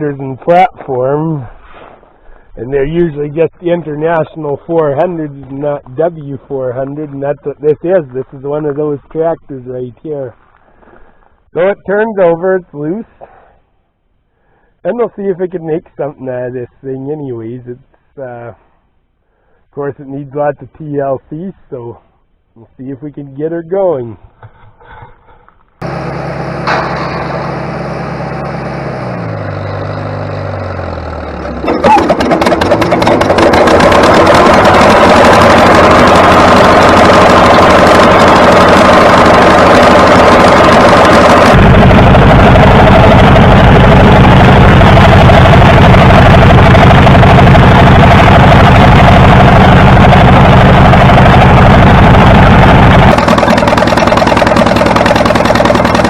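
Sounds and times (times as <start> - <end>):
tractor engine running: 25.8 - 56.0.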